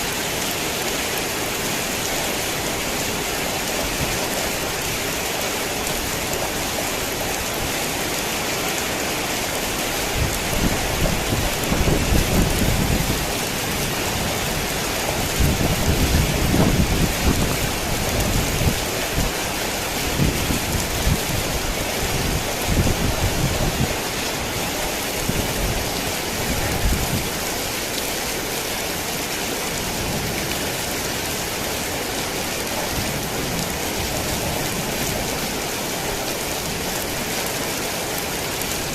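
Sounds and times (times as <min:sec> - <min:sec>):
heavy rain falling: 0:00.0 - 0:38.9
low thunder rumbling: 0:10.2 - 0:19.2.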